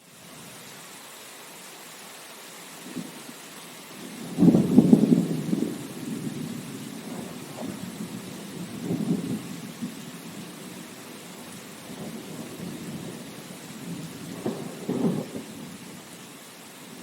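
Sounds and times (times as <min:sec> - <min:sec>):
steady rain hiss: 0:00.0 - 0:17.0
low thunder rumbles: 0:04.0 - 0:16.2.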